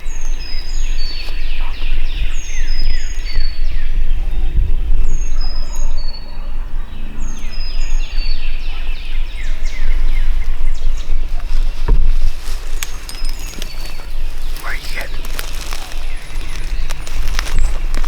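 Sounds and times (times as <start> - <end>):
songbirds chirping: 0.0 - 18.0
wild turkey gobbling: 8.6 - 18.0.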